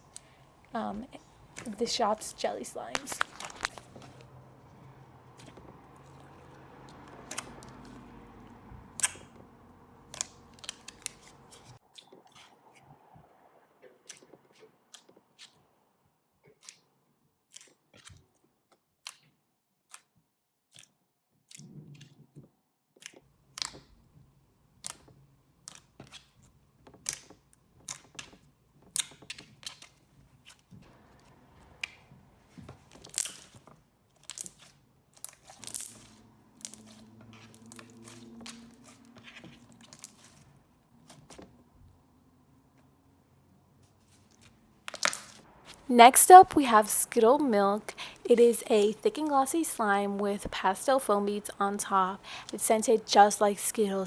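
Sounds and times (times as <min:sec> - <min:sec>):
slime being squished by hand: 0:44.1 - 0:45.4.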